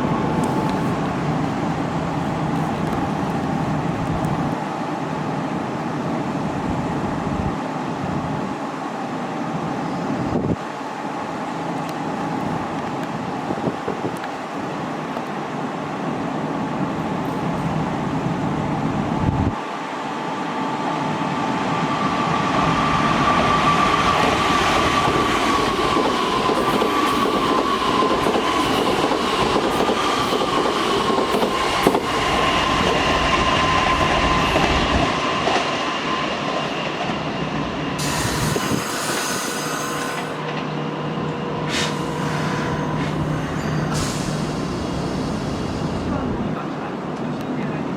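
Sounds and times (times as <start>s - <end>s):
train wheels squealing: 9.8s - 10.4s, 21.5s - 40.5s, 41.6s - 46.2s
train cars rumbling: 21.5s - 47.9s.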